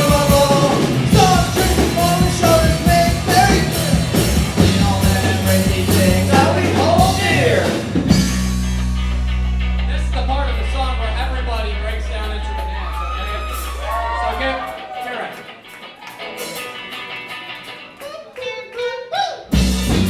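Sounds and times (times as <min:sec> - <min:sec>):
person singing: 0:00.0 - 0:07.9
driving drum beat: 0:00.0 - 0:14.8, 0:19.5 - 0:20.0
live rock band playing: 0:00.0 - 0:18.6, 0:19.5 - 0:20.0.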